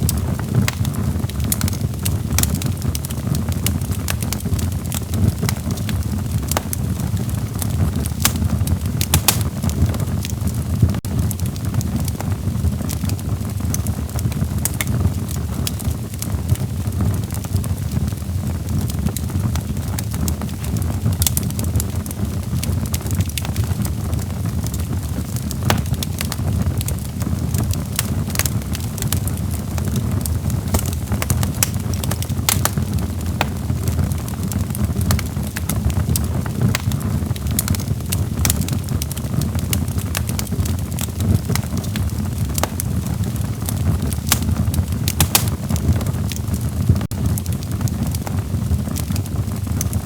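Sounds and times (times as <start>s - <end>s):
log fire crackling and popping: 0.0s - 50.0s
low rumble of flames: 0.0s - 50.0s.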